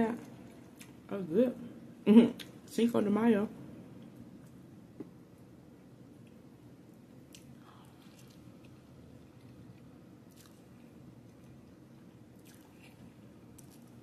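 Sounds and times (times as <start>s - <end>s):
low steady hum: 0.0s - 14.0s
person chewing food: 7.2s - 14.0s.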